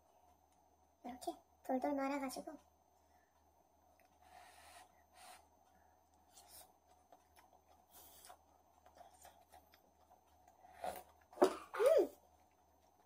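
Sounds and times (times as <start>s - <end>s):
soft chewing: 3.2s - 13.0s.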